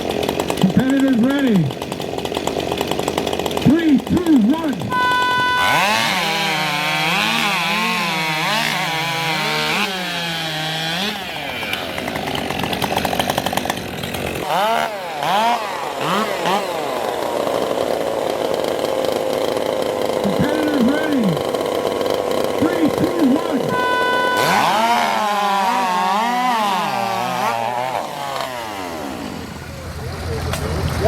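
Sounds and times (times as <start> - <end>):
chainsaw cutting log: 0.0 - 29.8.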